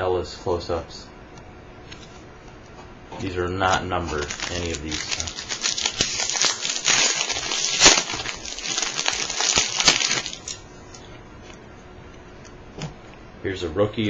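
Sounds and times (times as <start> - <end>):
pack wrapper crinkling: 4.0 - 10.6
trading cards shuffling: 4.1 - 10.6.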